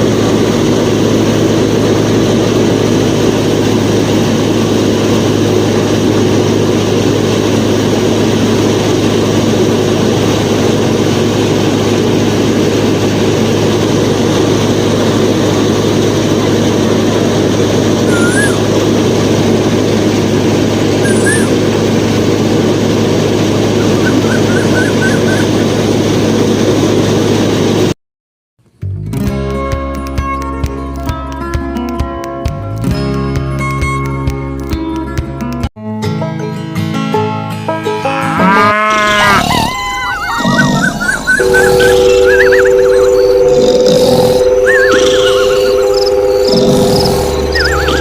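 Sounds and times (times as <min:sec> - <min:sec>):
thresher machine mechanical drone: 0:00.0 - 0:27.9, 0:37.9 - 0:48.0
brief high chirps: 0:40.2 - 0:48.0.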